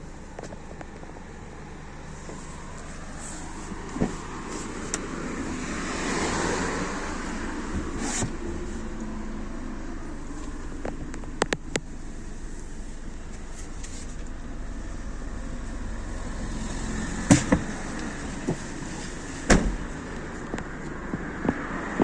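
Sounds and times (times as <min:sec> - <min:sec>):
car engine running: 0:00.0 - 0:22.0
sharp engine knocks: 0:17.2 - 0:17.8.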